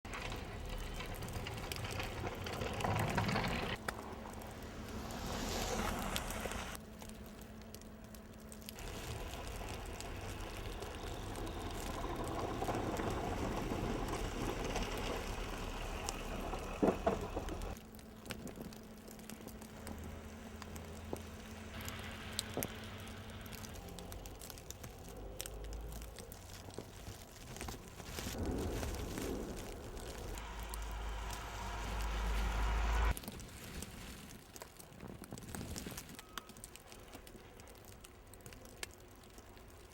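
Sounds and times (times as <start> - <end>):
wind gusting across microphone: 27.5 - 34.0.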